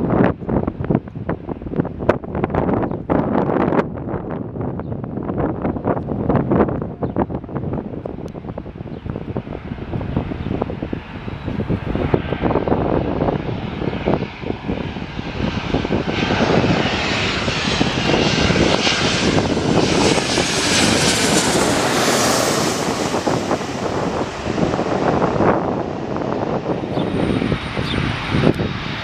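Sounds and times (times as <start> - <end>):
jet engines rushing and whining: 0.0 - 29.0.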